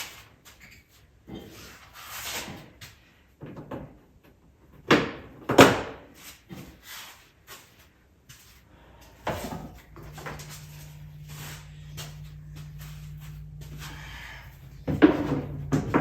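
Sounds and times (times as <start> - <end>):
parts knocking and clattering: 11.9 - 16.0.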